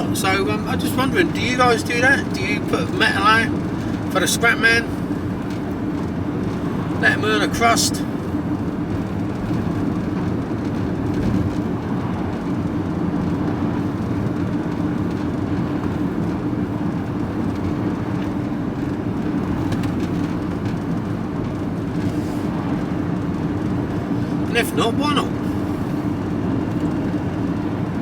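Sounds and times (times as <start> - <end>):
van engine and road noise: 0.0 - 28.0.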